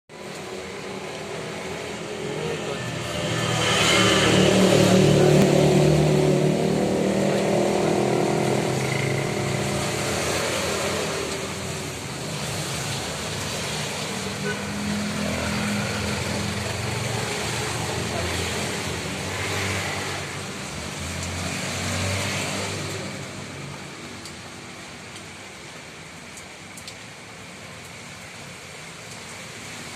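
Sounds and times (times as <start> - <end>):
tyres hissing on wet road: 0.1 - 29.9
vehicle passing: 1.5 - 23.4.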